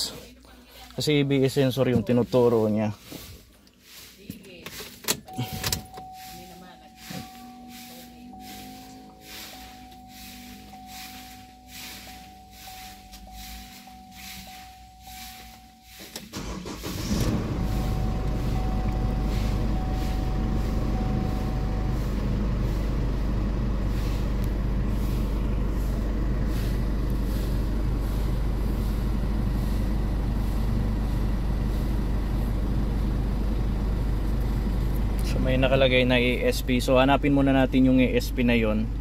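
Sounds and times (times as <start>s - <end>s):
car engine starting and idling: 4.6s - 39.0s
dashboard warning chime: 5.2s - 39.0s.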